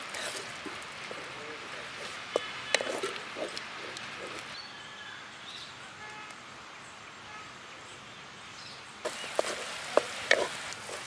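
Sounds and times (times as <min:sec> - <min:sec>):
wood fire crackles and pops: 0:00.0 - 0:04.5, 0:09.1 - 0:11.0
faint birdsong: 0:01.0 - 0:11.0
food frying with loud hiss: 0:09.0 - 0:11.0.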